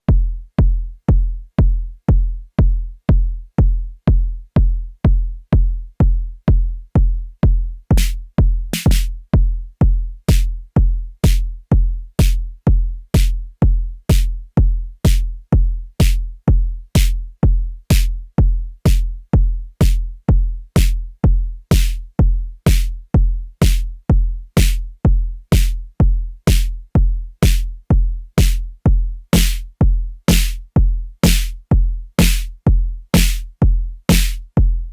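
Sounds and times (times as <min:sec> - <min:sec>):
deep booming kick drum: 0:00.0 - 0:34.9.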